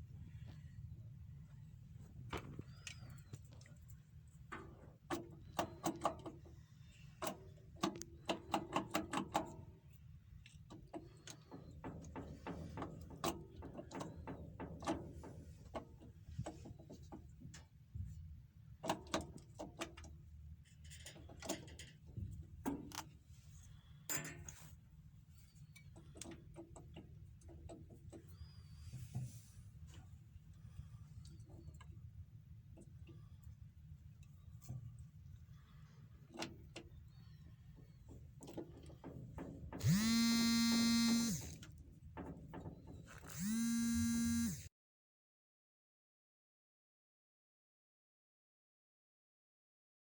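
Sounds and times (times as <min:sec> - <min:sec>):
ratchet clicks: 0:39.8 - 0:41.7, 0:43.2 - 0:44.6.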